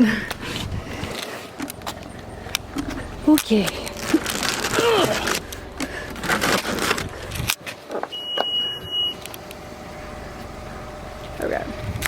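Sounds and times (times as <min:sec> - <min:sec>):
high beep: 0:08.1 - 0:09.2.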